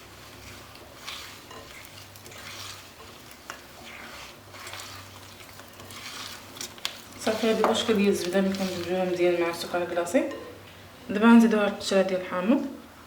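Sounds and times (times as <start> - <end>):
spoon scraping a mixing bowl: 0.4 - 10.5.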